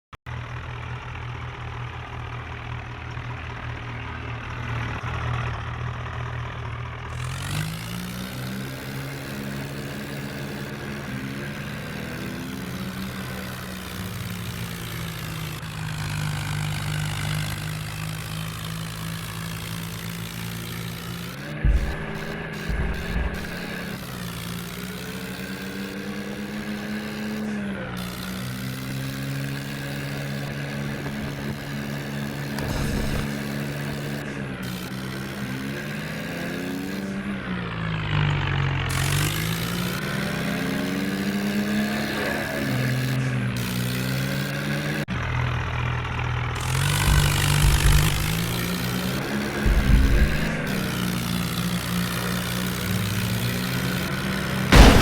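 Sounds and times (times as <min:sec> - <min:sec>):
diesel tractor engines under load: 0:00.3 - 0:55.0
heavy low rumbling surges: 0:21.6 - 0:23.9, 0:54.7 - 0:55.0.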